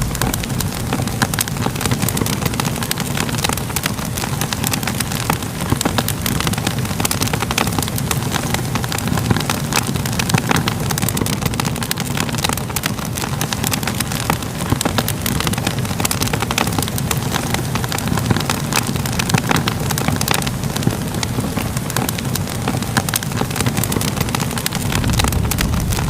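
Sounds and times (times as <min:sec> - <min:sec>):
fire crackling and popping: 0:00.0 - 0:26.0
low rumble of flames: 0:00.0 - 0:26.0.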